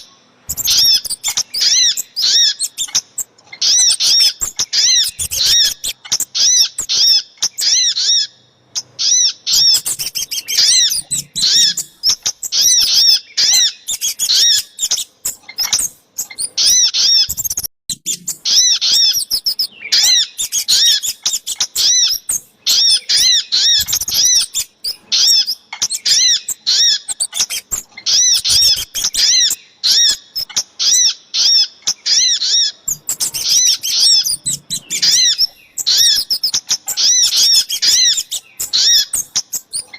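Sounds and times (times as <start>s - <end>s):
high arching bird chirps: 0.0s - 39.9s.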